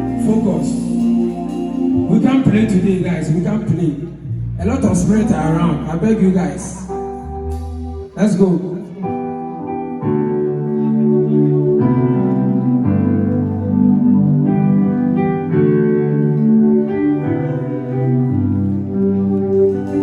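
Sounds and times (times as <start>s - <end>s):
live band instrumental: 0.0s - 13.4s.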